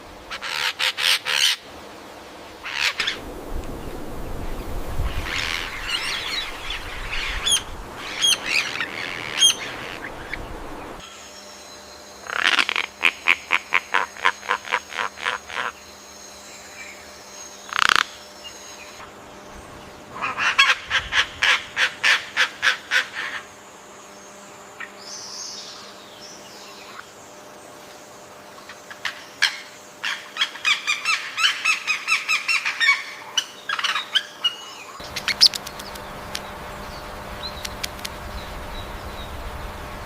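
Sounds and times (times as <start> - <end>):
bird calls: 2.6 - 11.5, 28.6 - 40.0
low rumble: 3.2 - 8.0, 35.1 - 40.0.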